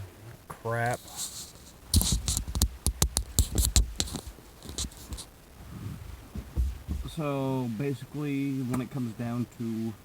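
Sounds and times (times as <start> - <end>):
sharp clicks and knocks: 1.9 - 5.3.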